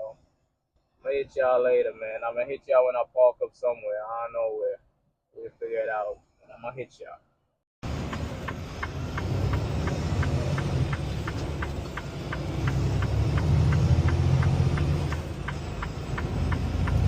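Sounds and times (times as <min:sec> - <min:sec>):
regular ticking: 0:07.8 - 0:17.0
truck engine and road noise: 0:07.8 - 0:17.0.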